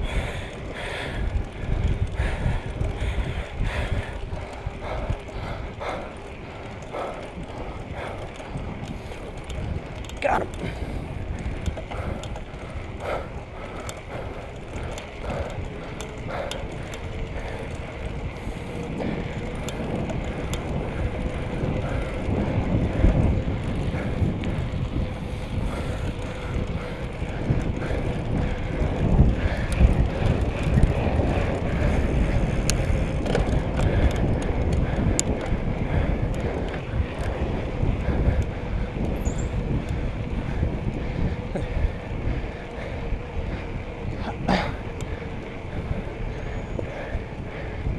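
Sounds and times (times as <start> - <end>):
bicycle clicks and rattles: 0.0 - 47.9
tyres rumbling on road: 0.0 - 47.9
wind buffeting microphone: 0.0 - 47.9.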